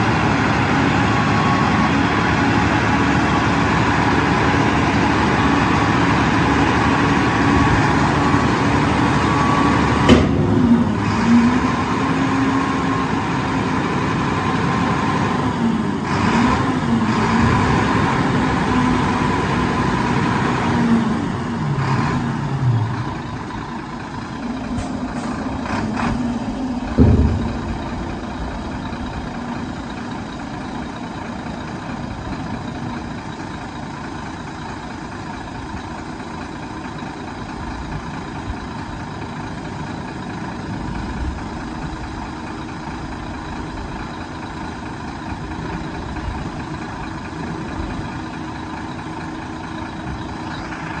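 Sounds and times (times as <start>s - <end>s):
diesel truck engine idling: 0.0s - 51.0s
loud thump: 10.1s - 10.8s, 26.8s - 29.6s.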